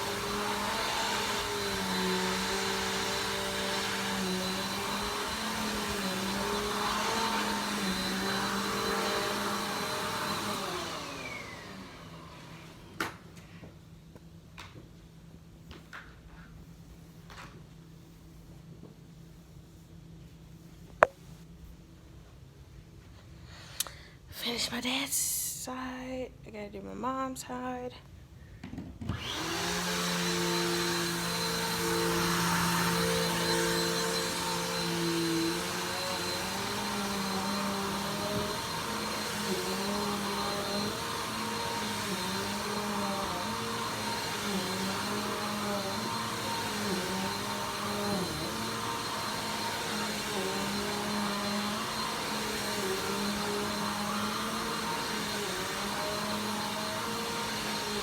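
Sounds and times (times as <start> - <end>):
vacuum cleaner running: 0.0 - 13.8, 28.7 - 58.0.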